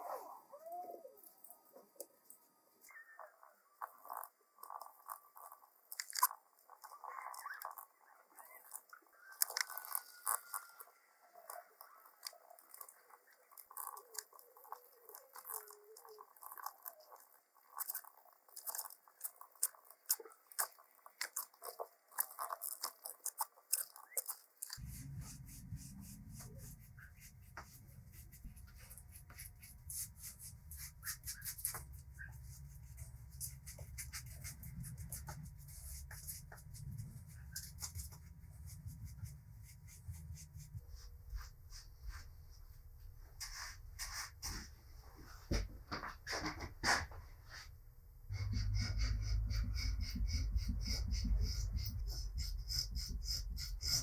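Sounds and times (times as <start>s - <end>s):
low steady hum: 24.6s - 43.3s, 47.8s - 54.0s.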